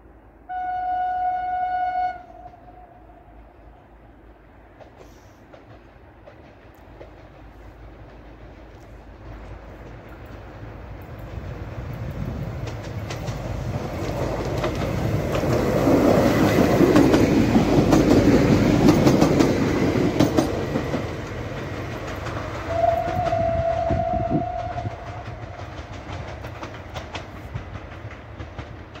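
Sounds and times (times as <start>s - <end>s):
passenger train passing: 0.0s - 29.0s
train horn steady note: 0.4s - 3.8s, 22.7s - 25.4s.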